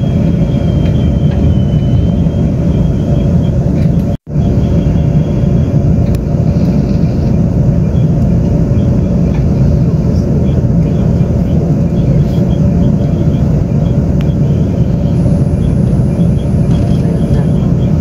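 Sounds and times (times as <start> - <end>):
faint high whine: 0.0 - 18.0
train wheels rumbling on rails: 0.0 - 18.0.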